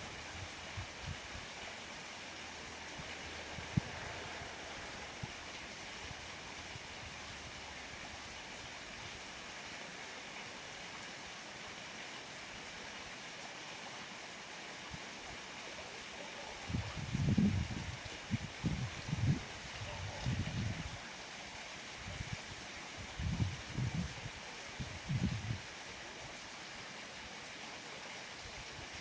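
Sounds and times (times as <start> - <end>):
water rushing: 0.0 - 29.0.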